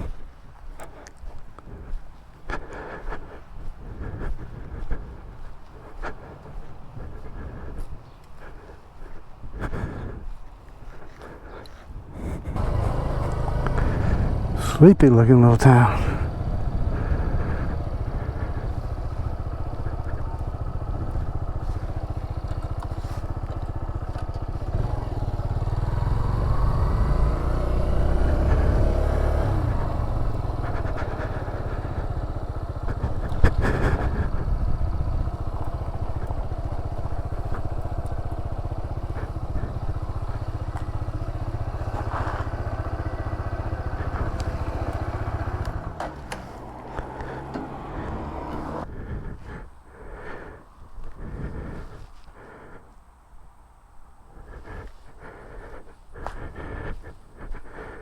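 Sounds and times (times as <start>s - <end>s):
motorcycle engine revving: 12.3s - 49.6s.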